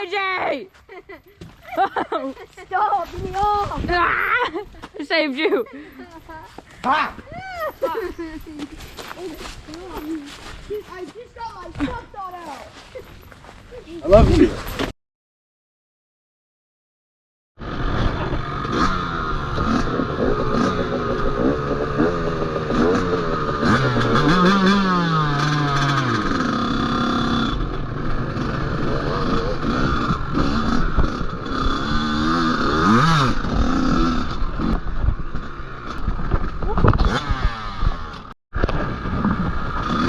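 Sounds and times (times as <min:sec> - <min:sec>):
dirt bike engine revving: 0:17.6 - 0:40.0.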